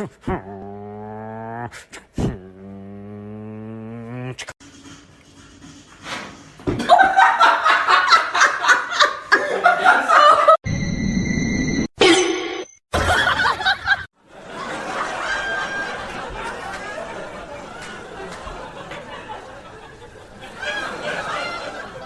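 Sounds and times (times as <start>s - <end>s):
person laughing hard: 6.8s - 10.6s
background noise: 13.2s - 22.0s.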